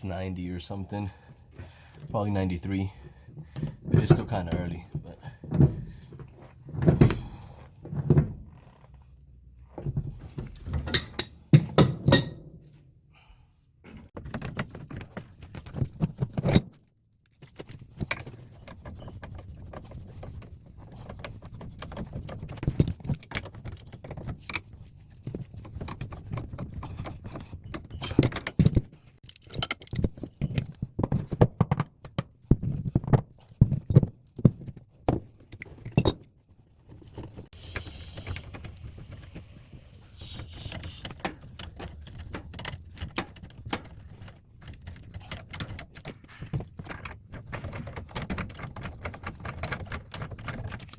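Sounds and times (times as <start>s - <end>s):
tools and pipe fittings clinking: 10.7s - 12.8s, 27.3s - 30.7s, 35.6s - 36.3s.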